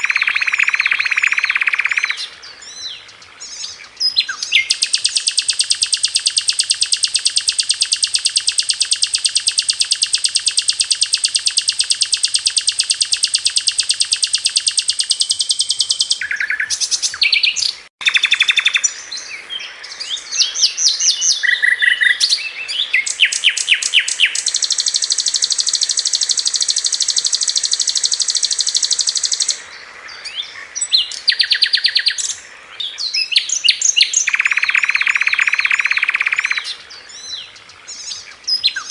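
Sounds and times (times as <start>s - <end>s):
flycatcher singing fast high notes: 0.0s - 2.2s, 4.5s - 16.8s, 23.1s - 29.6s.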